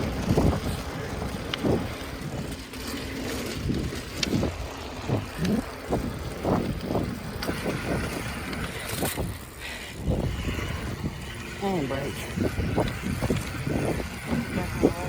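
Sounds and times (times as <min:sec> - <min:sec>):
small vehicle rumbling ride noise: 0:00.0 - 0:15.0.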